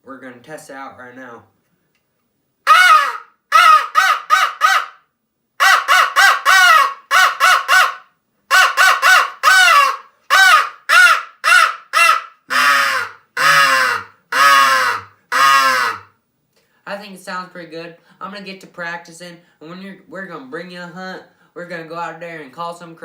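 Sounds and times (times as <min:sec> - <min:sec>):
crow call caws: 0:02.7 - 0:05.0, 0:05.6 - 0:16.1.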